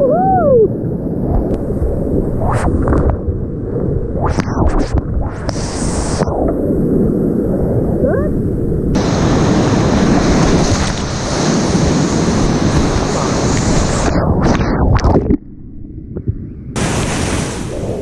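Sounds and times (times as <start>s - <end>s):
whitewater rushing and splashing: 9.0s - 14.5s, 16.8s - 18.0s.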